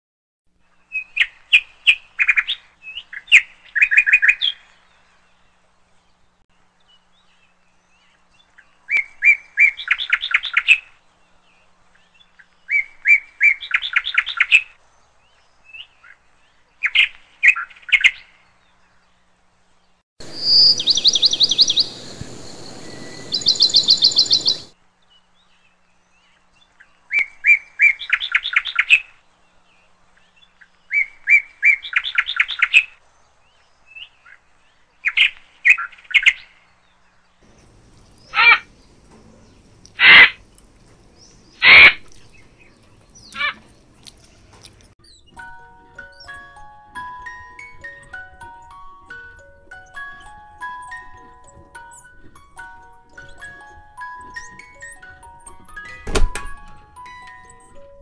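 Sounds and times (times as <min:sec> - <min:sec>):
steady hiss: 0:20.2 - 0:24.7
small bird chirping: 0:20.2 - 0:24.8, 0:37.4 - 0:58.0.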